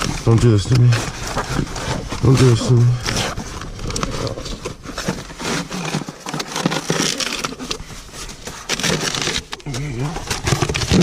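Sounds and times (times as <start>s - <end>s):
cardboard scraping and crackling: 0.0s - 11.0s.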